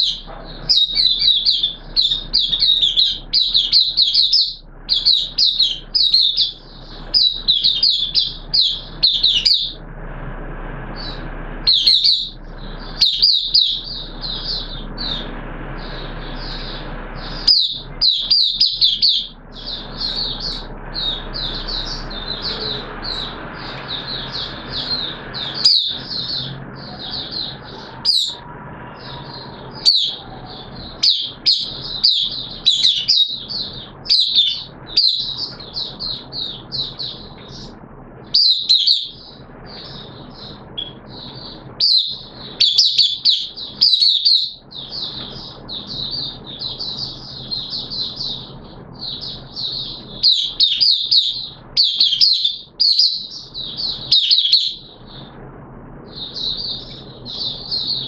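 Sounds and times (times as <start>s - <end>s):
bird twittering: 0.0s - 9.9s, 10.9s - 55.4s, 56.0s - 58.0s.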